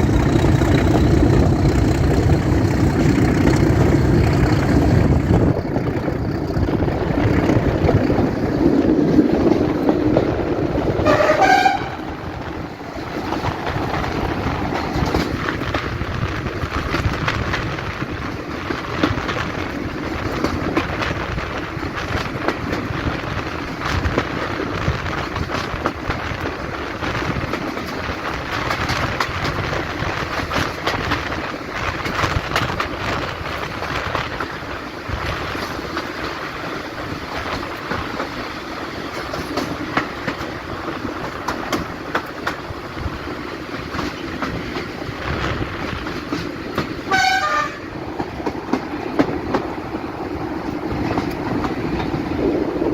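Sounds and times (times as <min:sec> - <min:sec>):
diesel locomotive engine running: 0:00.0 - 0:52.9
train rumbling on rails: 0:00.0 - 0:52.9
train horn toot: 0:11.0 - 0:12.2, 0:47.1 - 0:47.9.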